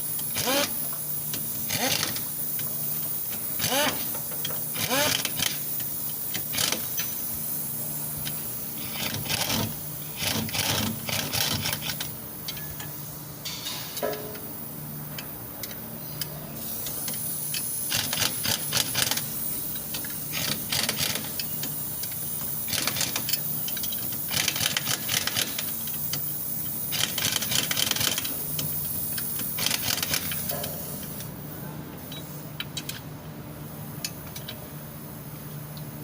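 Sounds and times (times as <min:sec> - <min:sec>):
rapid metallic clicking of hand tools: 0:00.2 - 0:02.7, 0:03.3 - 0:07.2, 0:08.2 - 0:12.7, 0:16.8 - 0:30.8.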